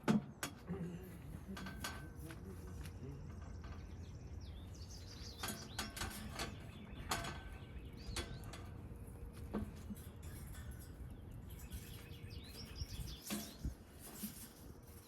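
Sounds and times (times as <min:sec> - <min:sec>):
low steady hum: 0:00.0 - 0:15.0
bird chirping: 0:02.6 - 0:08.8, 0:10.6 - 0:14.0
tools and sheet metal knocking: 0:05.4 - 0:08.8.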